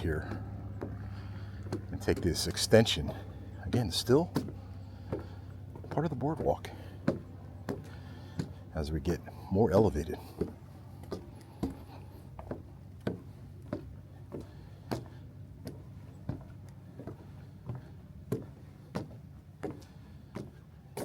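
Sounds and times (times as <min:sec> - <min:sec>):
footsteps on boardwalk: 0:00.0 - 0:21.0.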